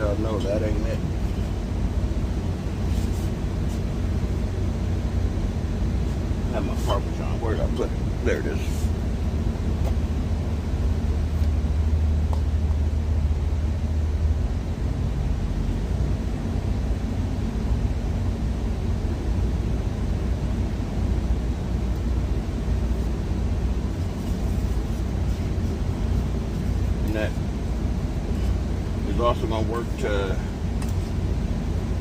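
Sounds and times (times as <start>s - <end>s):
truck engine idling: 0.0s - 32.0s.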